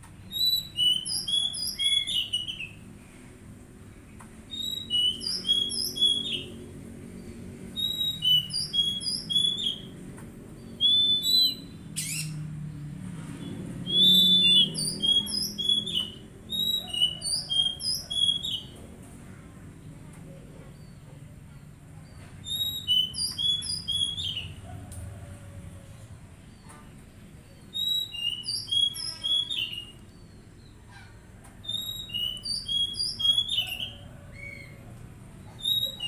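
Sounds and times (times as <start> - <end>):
bird whistling song: 0.2 - 2.8, 4.5 - 6.6, 7.7 - 9.9, 10.6 - 12.4, 13.5 - 18.8, 22.4 - 24.6, 27.5 - 30.7, 31.6 - 34.8, 35.4 - 36.0.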